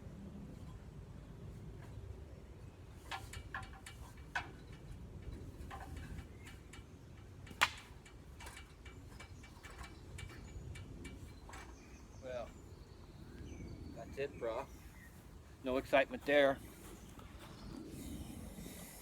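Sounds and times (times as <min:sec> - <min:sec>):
ladder clicks and knocks: 0:03.0 - 0:11.8.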